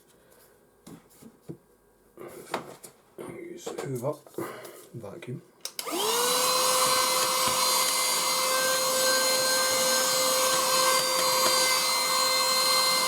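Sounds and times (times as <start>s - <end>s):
vacuum cleaner running: 5.8s - 13.0s.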